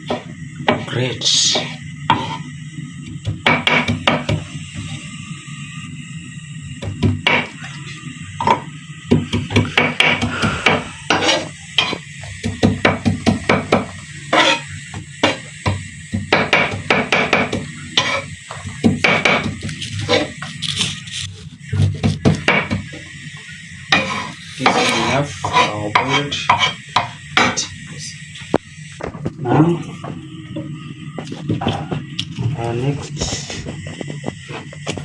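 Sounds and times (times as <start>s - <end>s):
knife chopping on wooden board: 3.2s - 4.4s, 8.5s - 14.6s, 15.2s - 18.2s, 18.8s - 20.3s.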